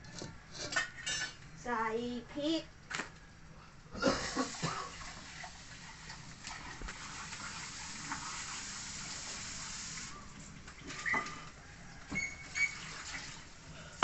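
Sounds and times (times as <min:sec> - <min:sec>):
steady hiss: 0:06.9 - 0:10.6.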